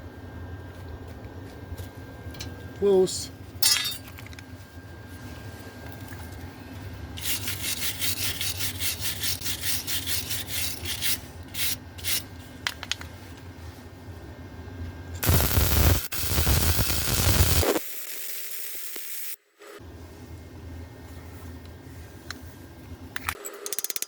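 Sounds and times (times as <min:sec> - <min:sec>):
wire brush scrubbing steel: 0:07.2 - 0:12.3
welder crackling: 0:15.2 - 0:19.4.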